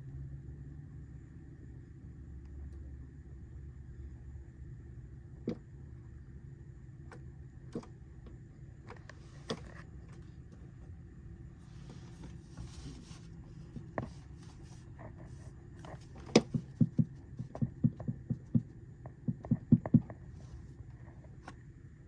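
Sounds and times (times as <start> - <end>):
bird pecking on house: 16.2 - 20.2.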